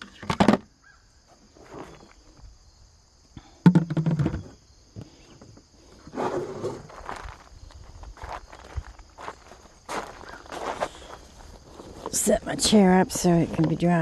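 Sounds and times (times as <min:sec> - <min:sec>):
insect chirring: 0:00.6 - 0:06.1, 0:06.8 - 0:14.0
scuffing footsteps: 0:07.0 - 0:12.2
rustling: 0:10.6 - 0:12.4.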